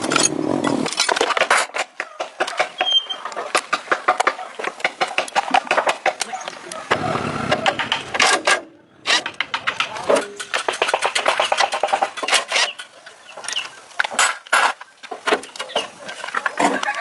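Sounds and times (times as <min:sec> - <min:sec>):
rapid sharp clicks and knocks: 0:00.8 - 0:12.9.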